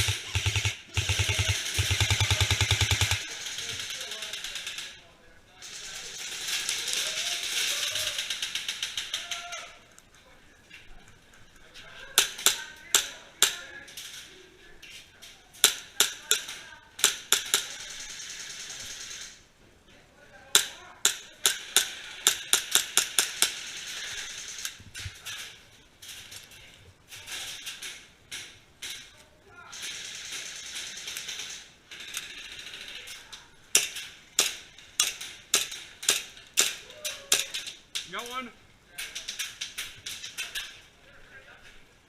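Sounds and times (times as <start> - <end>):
airsoft guns firing: 0.0 - 4.9, 15.6 - 19.4, 20.6 - 24.7, 29.7 - 33.0.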